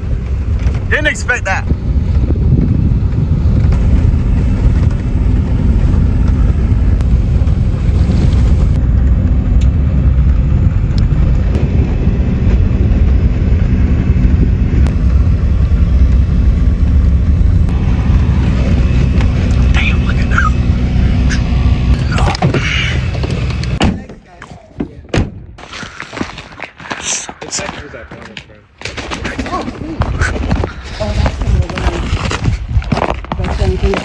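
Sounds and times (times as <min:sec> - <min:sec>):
car engine and road rumble: 0:00.0 - 0:24.3
faint steady drone: 0:03.8 - 0:23.8.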